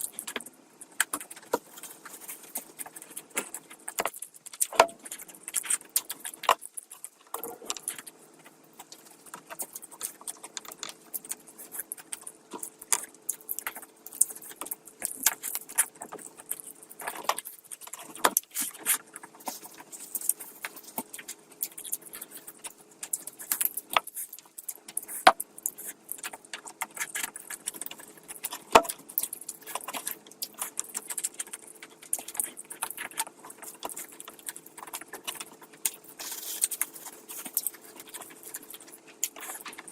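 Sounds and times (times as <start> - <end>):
chewing and wet smacks: 0.0 - 39.9
faint steady hum: 0.0 - 39.9.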